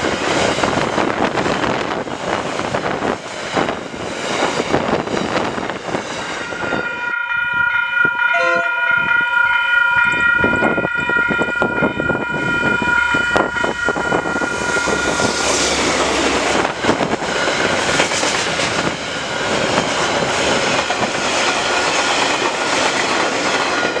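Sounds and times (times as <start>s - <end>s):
locomotive horn: 6.7s - 15.4s.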